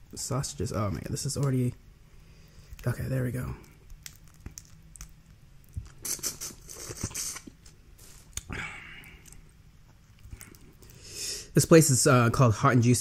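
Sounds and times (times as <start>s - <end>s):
crawfish shells cracking: 2.6s - 6.0s, 7.4s - 11.0s.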